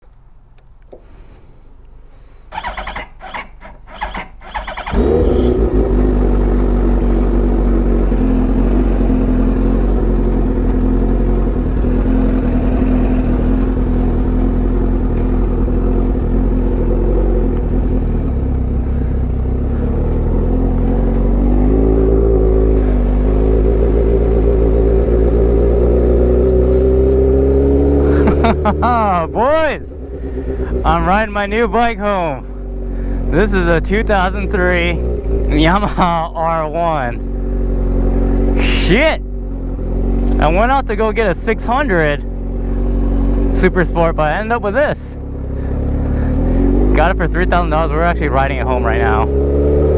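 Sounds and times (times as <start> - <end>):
motorcycle engine cranking: 2.5 - 6.9
motorcycle engine idling loudly: 2.5 - 26.2, 27.7 - 49.5.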